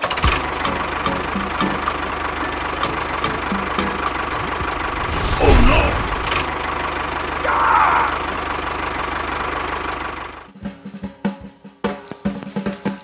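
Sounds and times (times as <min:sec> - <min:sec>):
engine running: 0:00.0 - 0:10.5
music with drum strikes: 0:00.2 - 0:02.1, 0:02.8 - 0:04.8, 0:10.5 - 0:13.0.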